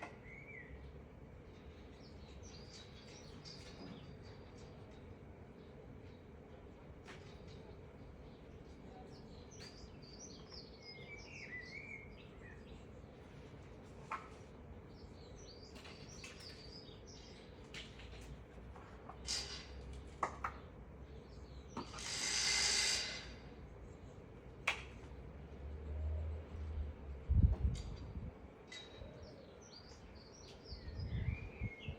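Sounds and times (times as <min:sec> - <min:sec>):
small birds chirping: 0:00.0 - 0:18.3, 0:28.6 - 0:31.9.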